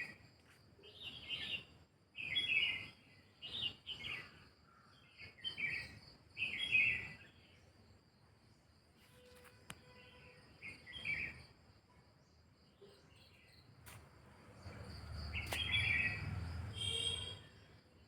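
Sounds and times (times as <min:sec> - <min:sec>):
birds chirping: 0:14.5 - 0:17.8.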